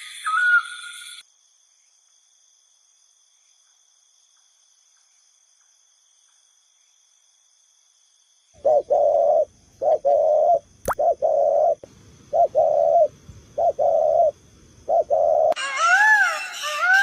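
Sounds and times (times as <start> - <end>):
high insect trill: 0.0 - 15.6
pigeon cooing: 8.6 - 15.6.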